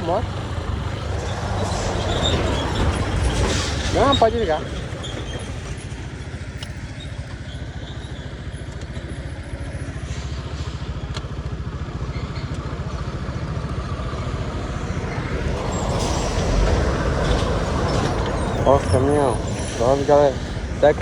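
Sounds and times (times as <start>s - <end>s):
motorcycle engine running: 4.0s - 21.0s
wind rushing: 14.2s - 21.0s.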